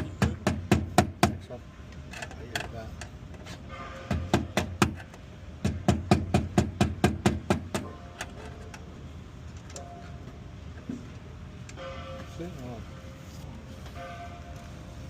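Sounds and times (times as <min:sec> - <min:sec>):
hammer striking hard surface: 0:03.7 - 0:05.0.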